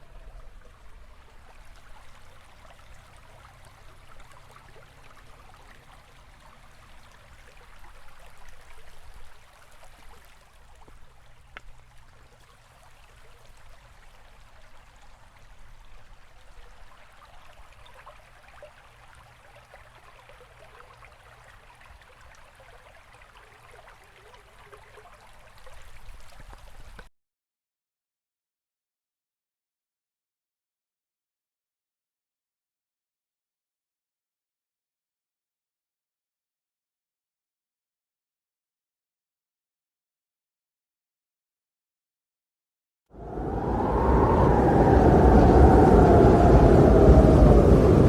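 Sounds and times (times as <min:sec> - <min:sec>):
stream water flowing: 0:00.0 - 0:27.1.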